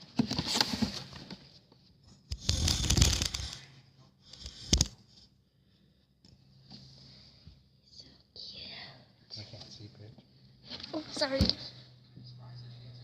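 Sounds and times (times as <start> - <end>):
rustling and scraping handling noise: 0.0 - 3.7.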